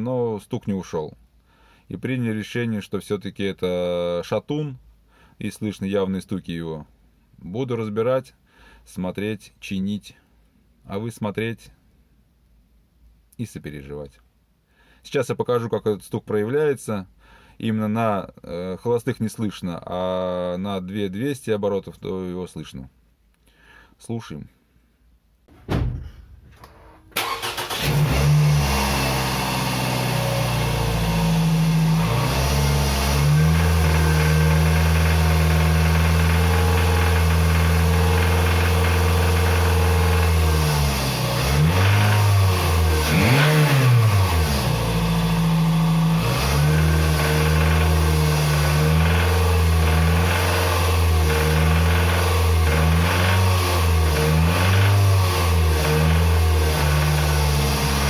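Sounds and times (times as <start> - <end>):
car engine starting and revving: 27.1 - 58.0.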